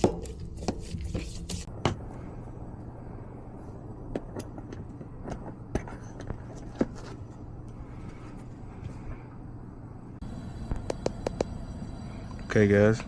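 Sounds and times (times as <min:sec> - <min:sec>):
hvac blower humming: 0:10.2 - 0:13.0.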